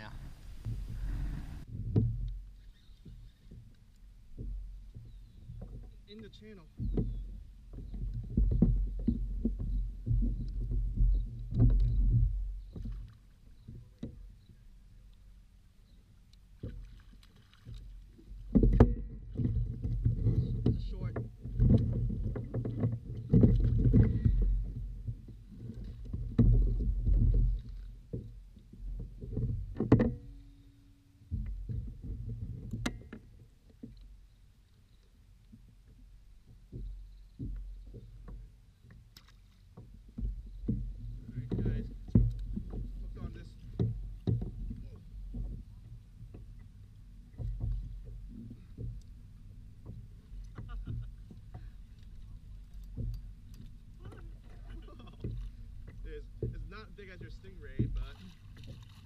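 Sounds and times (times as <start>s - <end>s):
handling noise low rumbling: 0.0s - 2.6s
gear knocking against hull: 4.3s - 14.2s, 17.8s - 28.3s, 39.8s - 59.0s.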